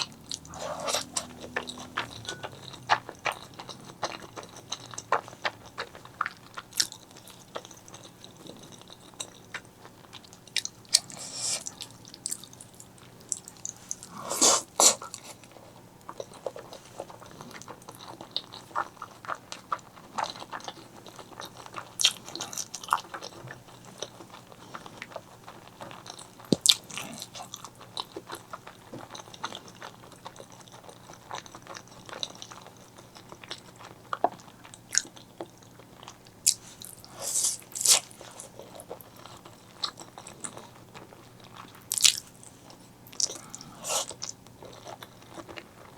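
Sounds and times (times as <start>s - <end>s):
slurping: 0.0s - 5.3s, 10.9s - 12.4s, 13.7s - 15.4s, 36.6s - 38.5s, 43.2s - 44.3s
wet chewing: 0.0s - 45.9s.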